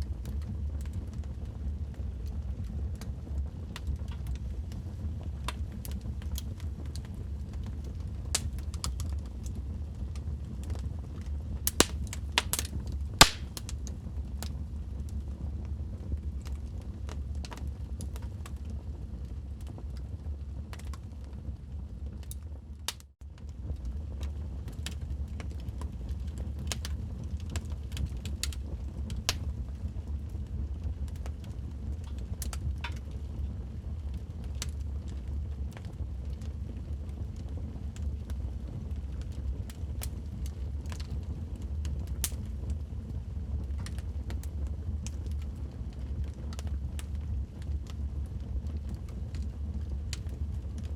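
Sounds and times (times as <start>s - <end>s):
wood fire crackling and popping: 0.0s - 50.9s
steady low rumble: 3.7s - 14.5s.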